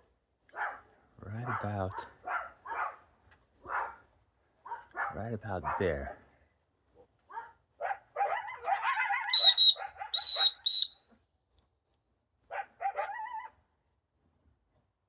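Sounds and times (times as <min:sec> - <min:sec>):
coyotes yipping and yelping: 0:07.8 - 0:10.9, 0:12.8 - 0:13.6
shrill dog whistle blasts: 0:09.4 - 0:11.0.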